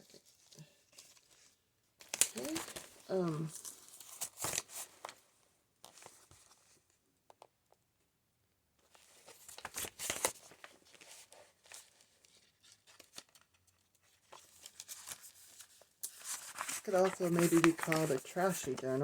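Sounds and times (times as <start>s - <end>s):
paper pages crinkling and rustling: 0.0s - 5.2s, 5.8s - 7.5s, 8.8s - 19.0s.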